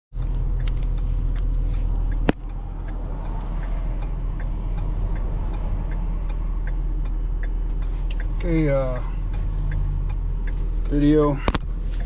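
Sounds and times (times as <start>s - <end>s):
vehicle engine rumbling: 0.1s - 12.0s.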